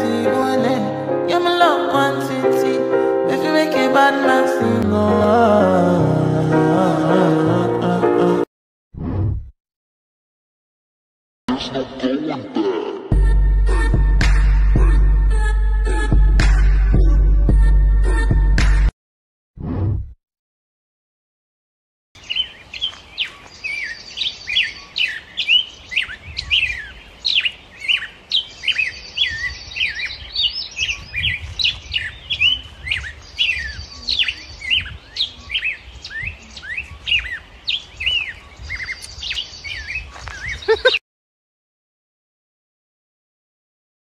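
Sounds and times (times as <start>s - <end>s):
birds chirping: 22.2s - 41.0s
buzzy bird trill: 22.2s - 41.0s.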